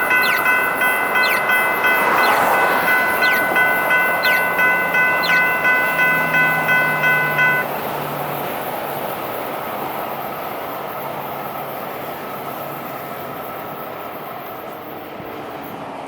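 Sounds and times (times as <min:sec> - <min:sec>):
electronic crossing bells ringing: 0:00.0 - 0:07.7
rushing background noise: 0:00.0 - 0:16.0.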